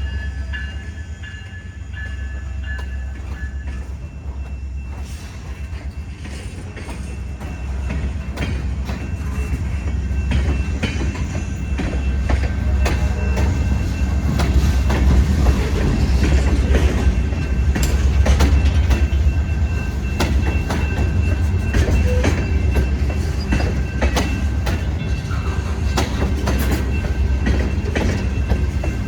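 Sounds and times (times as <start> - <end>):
freight train rumble: 0.0 - 29.0
wheels clicking over rail joints: 5.5 - 19.3, 19.9 - 29.0.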